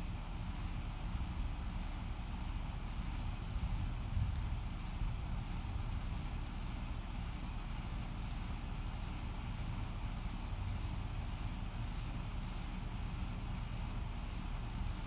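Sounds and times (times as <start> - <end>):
steady low rumble: 0.4 - 9.9.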